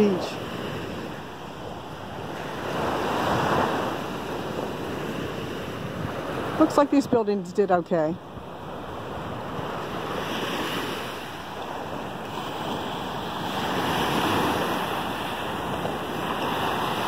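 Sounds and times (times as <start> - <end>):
wind on microphone: 0.0 - 17.0
surf washing onto beach: 8.5 - 17.0.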